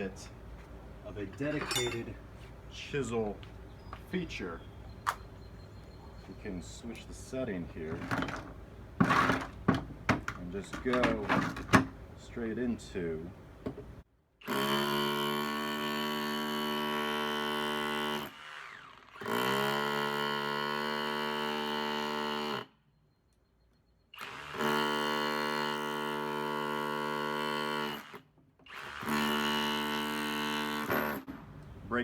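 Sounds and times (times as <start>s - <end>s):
rotary hammer rattling: 1.3s - 2.2s.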